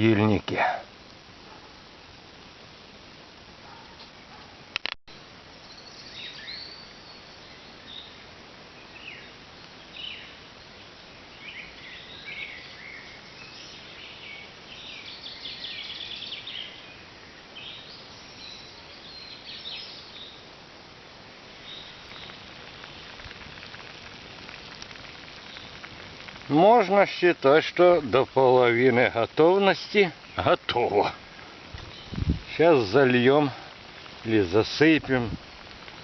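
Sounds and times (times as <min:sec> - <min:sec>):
steady background hiss: 0:00.0 - 0:36.0
small birds chirping: 0:03.6 - 0:20.7, 0:21.3 - 0:36.0
sharp click: 0:04.8 - 0:05.0.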